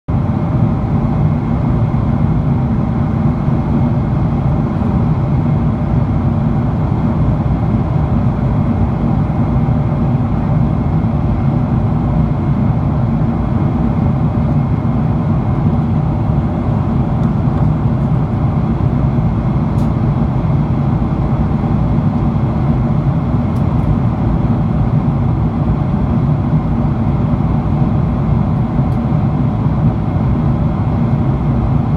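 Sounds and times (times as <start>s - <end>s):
airplane cabin engine roar: 0.1s - 31.9s.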